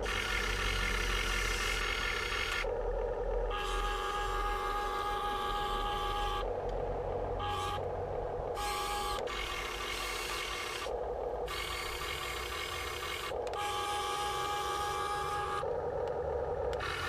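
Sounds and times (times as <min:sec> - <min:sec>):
toy excavator motors whining: 0:00.0 - 0:02.7, 0:03.5 - 0:06.5, 0:07.4 - 0:07.8, 0:08.6 - 0:15.7, 0:16.7 - 0:17.0.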